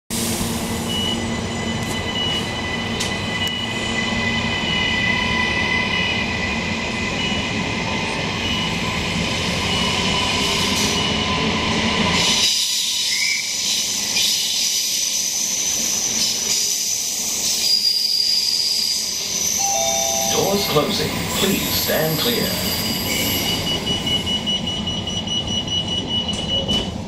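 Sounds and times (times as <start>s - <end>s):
train rushing past: 0.1s - 27.0s
high squealing tones: 17.6s - 24.5s.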